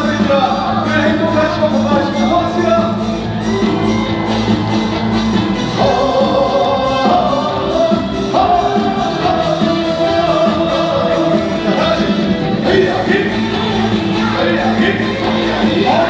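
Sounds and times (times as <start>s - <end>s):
band playing through loudspeakers: 0.0s - 16.0s
man singing long held notes: 5.8s - 16.0s.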